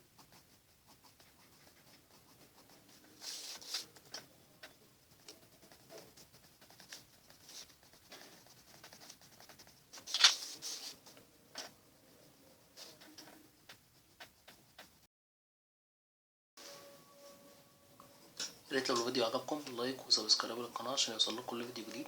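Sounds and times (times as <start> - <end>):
pencil scratching on paper: 0.0 - 15.0.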